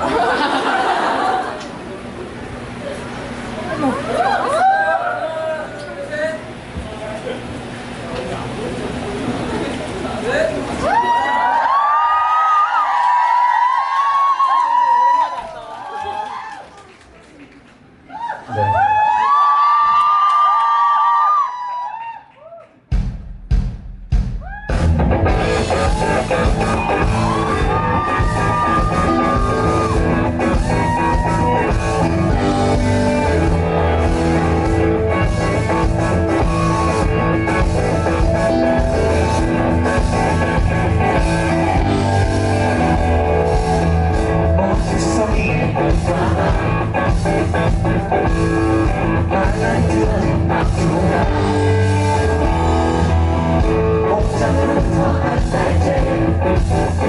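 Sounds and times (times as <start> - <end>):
live rock band playing: 24.7 - 57.0.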